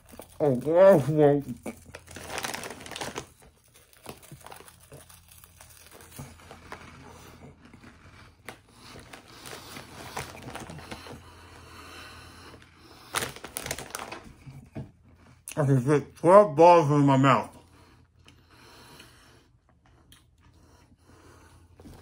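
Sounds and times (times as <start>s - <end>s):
crunching snack in mouth: 0.0s - 11.4s, 12.6s - 15.6s.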